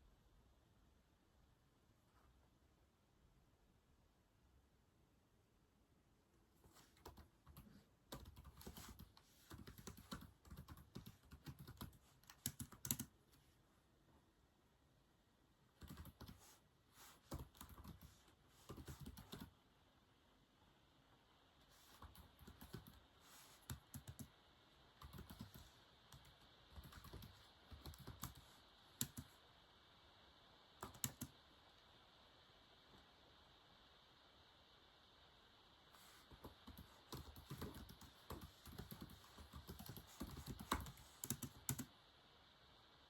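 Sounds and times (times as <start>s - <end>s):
typing on a keyboard: 7.0s - 13.1s, 15.8s - 16.4s, 17.3s - 19.5s, 22.0s - 23.0s, 23.6s - 24.3s, 25.0s - 28.4s, 29.0s - 29.3s, 30.8s - 31.3s, 36.4s - 41.9s.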